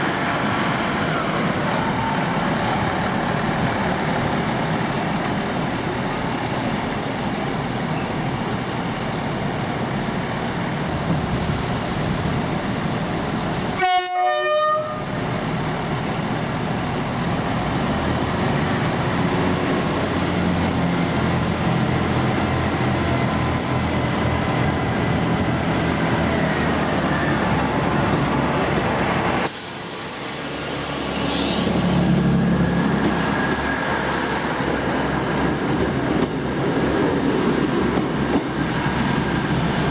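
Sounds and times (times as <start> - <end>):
rail noise: 0.0 - 39.9
train engine hum: 0.0 - 39.9
train horn blast: 13.7 - 15.2.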